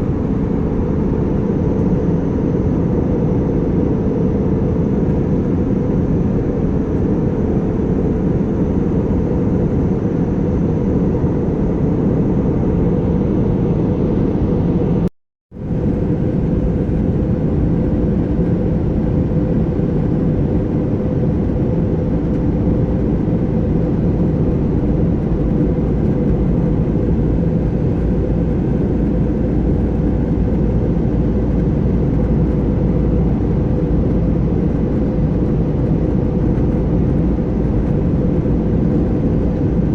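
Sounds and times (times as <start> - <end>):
jet cabin noise: 0.0 - 39.9.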